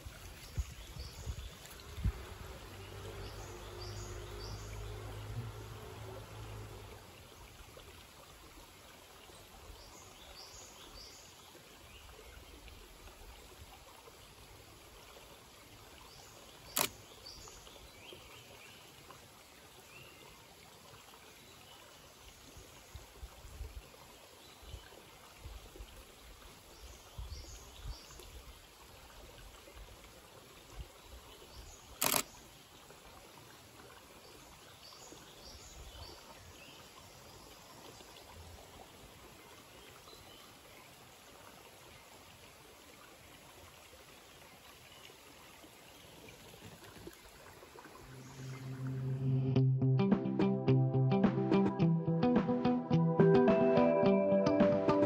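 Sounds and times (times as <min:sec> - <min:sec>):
sharp clicks: 0:16.7 - 0:17.0, 0:32.0 - 0:32.3
distant birds chirping: 0:31.9 - 0:32.4.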